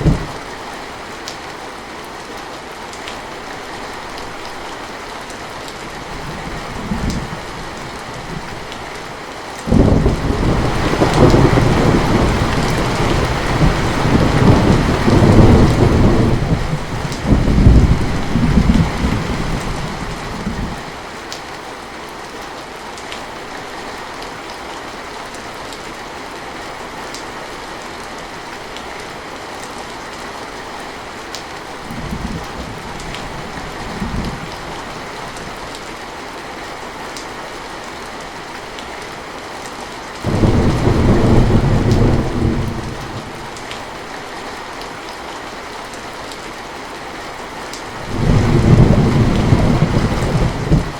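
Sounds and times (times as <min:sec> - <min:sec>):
thunder rumbling: 0:00.0 - 0:00.4, 0:09.7 - 0:20.8, 0:40.3 - 0:43.7, 0:48.0 - 0:50.9
heavy rain falling: 0:00.0 - 0:50.9.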